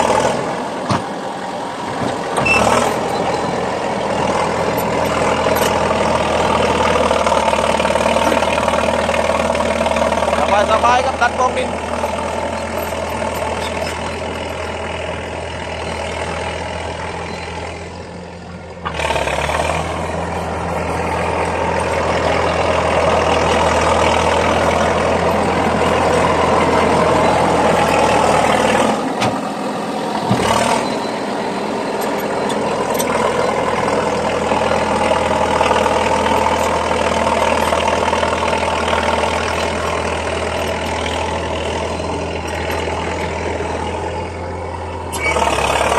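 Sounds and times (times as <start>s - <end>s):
bulldozer diesel engine: 0.0s - 45.9s.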